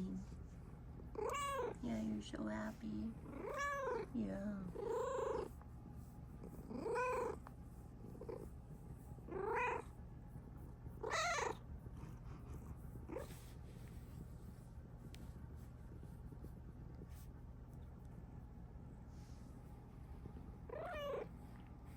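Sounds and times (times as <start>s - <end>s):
cat meowing: 1.2s - 1.8s, 3.3s - 4.0s, 11.0s - 11.6s, 20.7s - 21.3s.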